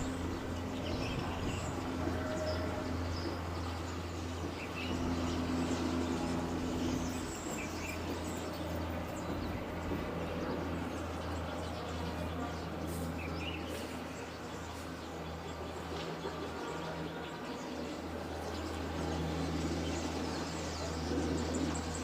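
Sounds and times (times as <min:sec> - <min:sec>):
distant engine rumble: 0:00.0 - 0:22.0.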